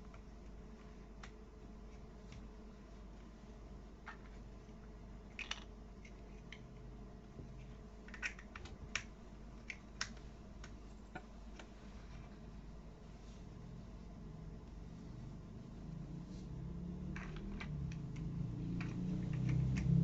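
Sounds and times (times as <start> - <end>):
toy building pieces clicking: 5.3 - 6.7, 8.1 - 10.2, 17.2 - 18.1, 18.8 - 20.0.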